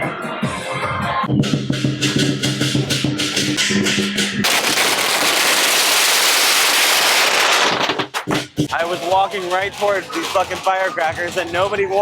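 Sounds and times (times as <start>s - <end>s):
parade band music: 0.0s - 5.1s, 8.3s - 12.0s
firecrackers crackling and banging: 4.4s - 12.0s.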